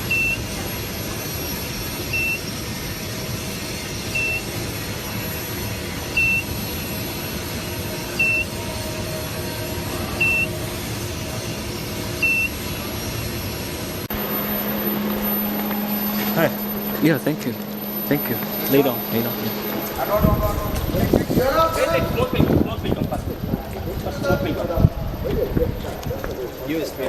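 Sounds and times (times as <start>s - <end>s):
machine hum: 14.0s - 25.2s
electronic beeper beeping: 14.1s - 22.7s.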